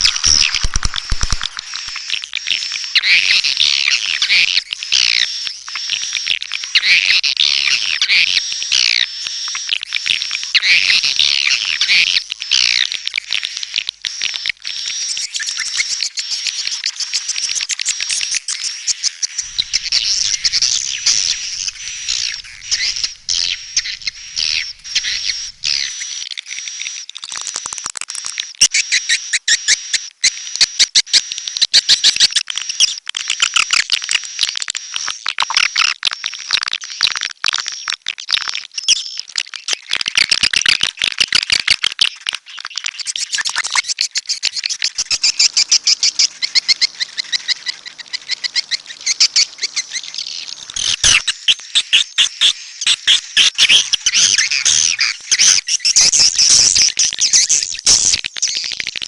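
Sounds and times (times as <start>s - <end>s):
swiftlets chattering: 0.0s - 2.2s
thin steady high tone: 19.4s - 26.2s.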